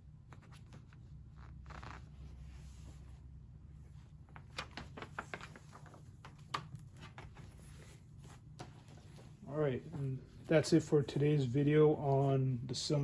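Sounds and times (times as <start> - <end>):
paper rustling: 4.2 - 10.5.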